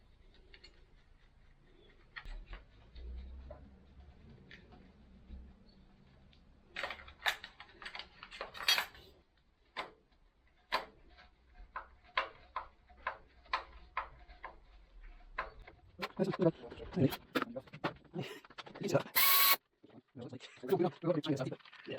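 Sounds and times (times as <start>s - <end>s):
tools clinking on metal parts: 6.8s - 9.0s.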